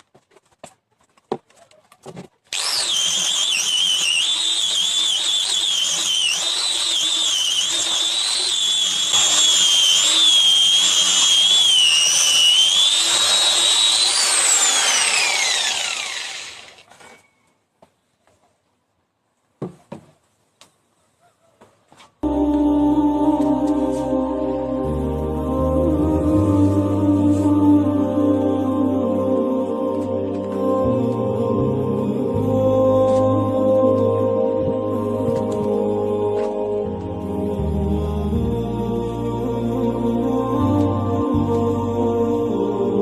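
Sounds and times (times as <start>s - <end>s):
power tool motor whining: 2.5s - 17.2s.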